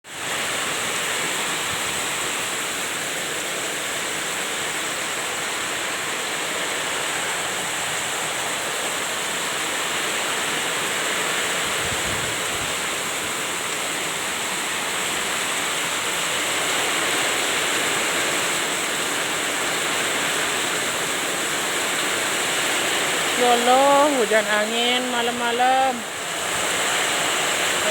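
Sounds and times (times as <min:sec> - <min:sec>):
heavy rain pouring: 0:00.0 - 0:27.9
wind: 0:00.0 - 0:27.9.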